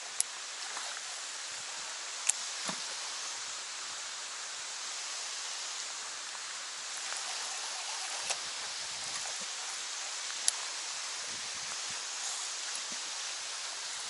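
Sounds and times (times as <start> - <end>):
light rain on water: 0.0 - 14.0
faint ticks: 2.2 - 2.9, 9.1 - 10.9, 11.6 - 13.4.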